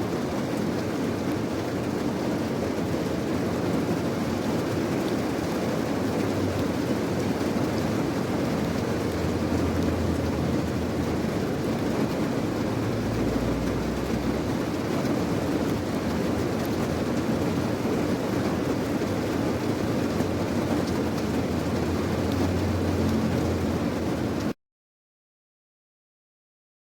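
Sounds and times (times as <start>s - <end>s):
steady rain hiss: 0.0s - 24.6s
low rumble: 8.6s - 14.8s.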